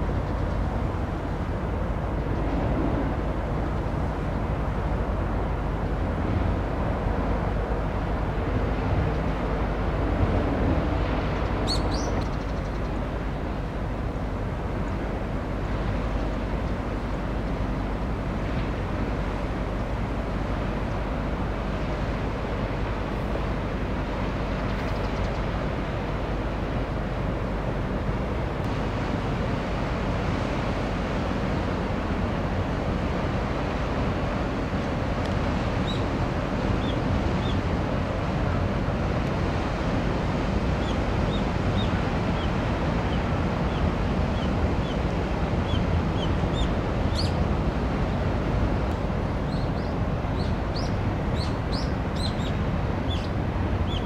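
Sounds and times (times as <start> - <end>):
ship engine rumble: 0.0 - 54.0
water noise: 0.0 - 54.0
wind: 0.0 - 54.0.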